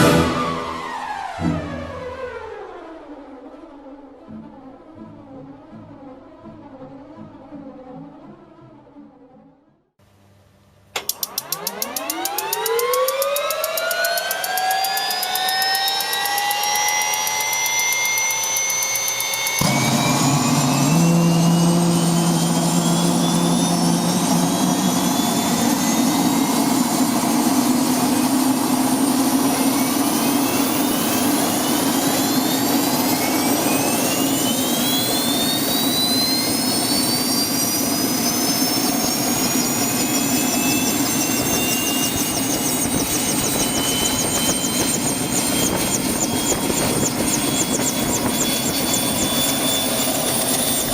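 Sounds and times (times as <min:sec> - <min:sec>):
turbine engine whine and rush: 0:00.0 - 0:07.3, 0:11.0 - 0:50.9
low hum: 0:12.8 - 0:50.9.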